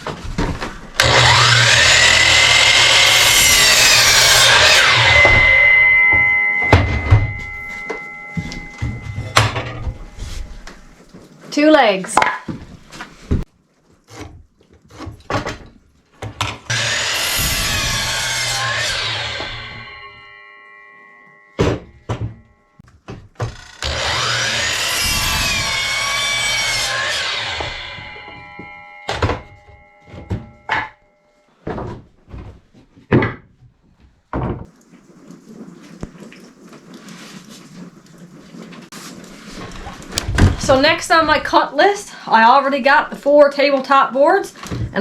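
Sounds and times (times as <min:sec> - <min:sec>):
power saw cutting board: 0:00.0 - 0:11.2, 0:16.7 - 0:20.5, 0:23.4 - 0:30.9.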